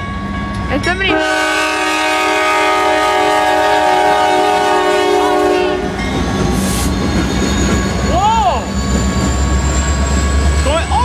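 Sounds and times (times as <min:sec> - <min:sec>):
train rumbling past: 0:00.0 - 0:11.0
locomotive air horn: 0:01.1 - 0:06.0.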